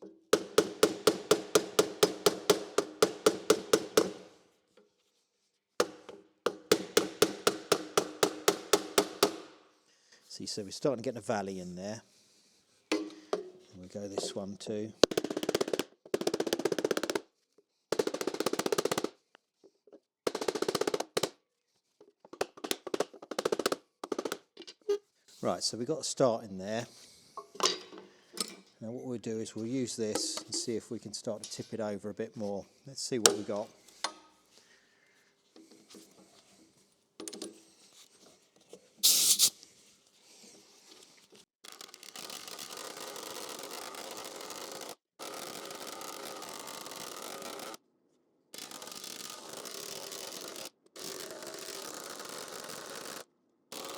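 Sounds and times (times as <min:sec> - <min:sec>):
air chisel hammering sheet metal: 0:00.3 - 0:04.3, 0:05.8 - 0:09.6
air hiss: 0:39.0 - 0:39.6.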